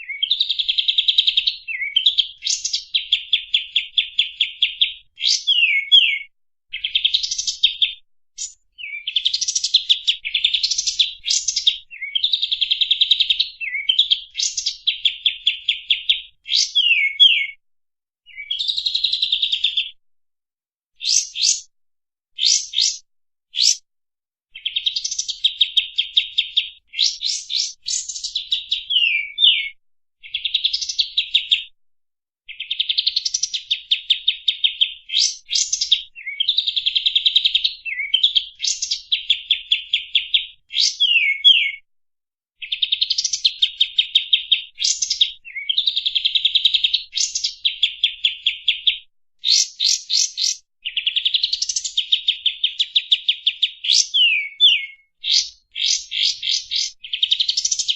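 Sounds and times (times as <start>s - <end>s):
bird trilling: 5.2s - 7.6s, 16.5s - 17.6s, 21.0s - 21.7s, 22.4s - 23.0s, 23.6s - 23.8s, 28.9s - 29.7s, 40.8s - 41.8s, 53.9s - 57.8s.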